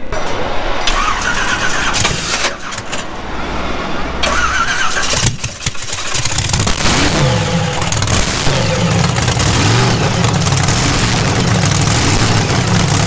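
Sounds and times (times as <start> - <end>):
drag racing car engine revving: 4.2 - 13.0.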